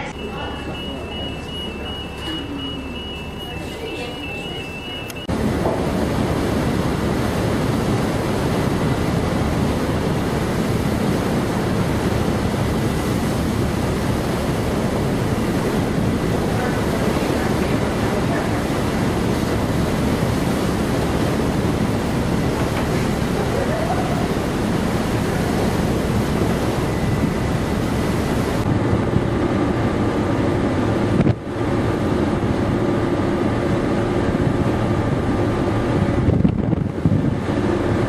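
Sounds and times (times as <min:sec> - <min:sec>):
sea water rushing: 0:00.0 - 0:38.0
strong wind on microphone: 0:23.8 - 0:38.0.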